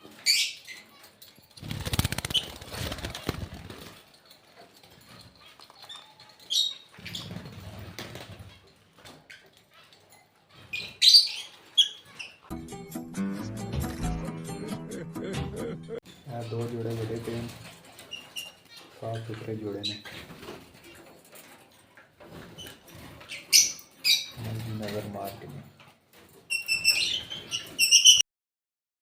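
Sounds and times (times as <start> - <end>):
birds chirping: 0.0 - 12.5, 16.0 - 25.8, 26.5 - 28.2
wings fluttering: 1.4 - 4.3, 5.0 - 9.2.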